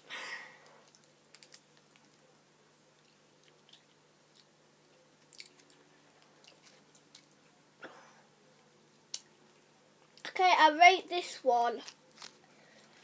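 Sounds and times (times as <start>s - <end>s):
faint chewing: 2.9s - 7.6s.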